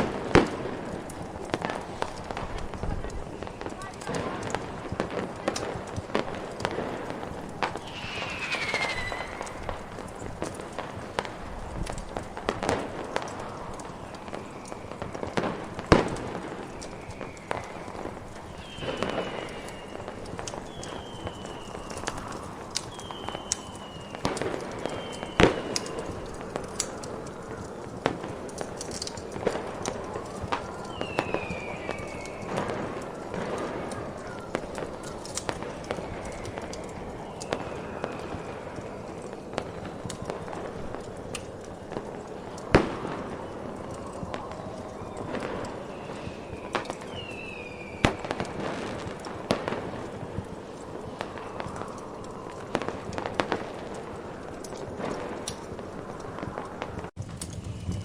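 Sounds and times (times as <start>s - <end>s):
firework pops and crackles: 0.0s - 58.0s
falling firework whistle: 7.4s - 11.1s, 16.5s - 26.4s, 30.2s - 32.9s, 42.8s - 49.7s
short high whistles: 7.7s - 10.6s.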